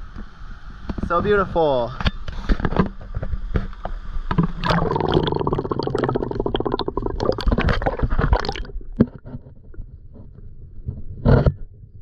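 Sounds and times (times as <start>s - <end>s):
water sloshing and splashing: 3.6s - 10.4s.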